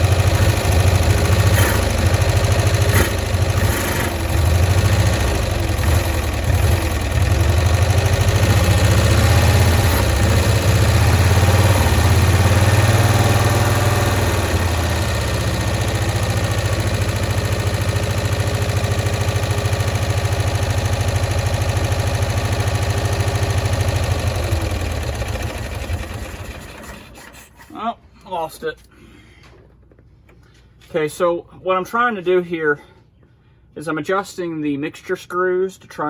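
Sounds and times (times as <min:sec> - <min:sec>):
small engine running roughly: 0:00.0 - 0:27.4.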